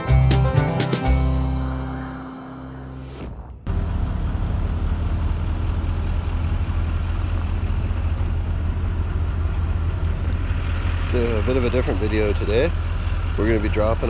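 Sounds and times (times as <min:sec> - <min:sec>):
music: 0:00.0 - 0:03.4
vehicle engine droning: 0:00.0 - 0:14.0.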